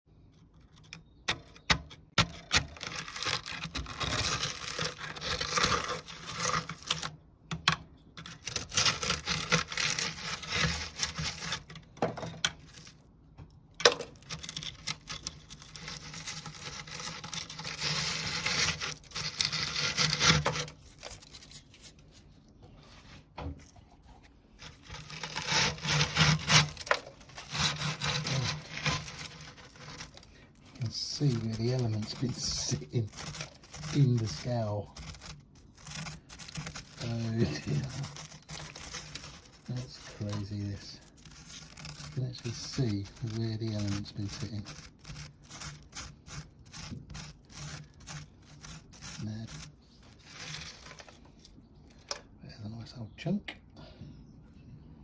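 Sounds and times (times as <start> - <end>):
scraping limescale in a boiler: 0.2 - 13.1, 13.8 - 22.3, 23.7 - 52.2
sharp clicks and knocks: 0.6 - 21.2.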